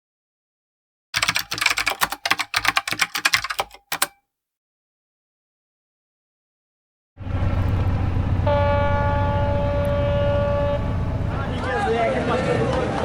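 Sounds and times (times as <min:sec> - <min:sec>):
typing keys clattering: 0:01.2 - 0:04.2.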